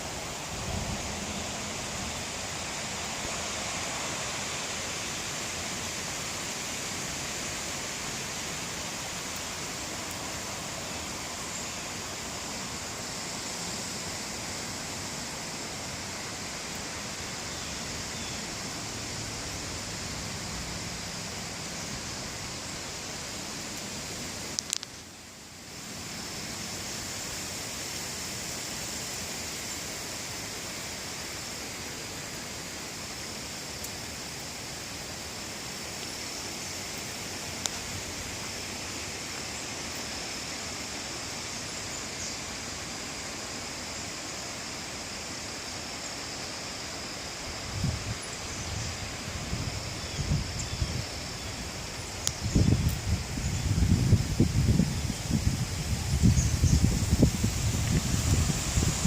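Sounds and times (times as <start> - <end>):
strong wind blowing: 0.0 - 3.8, 47.6 - 59.0.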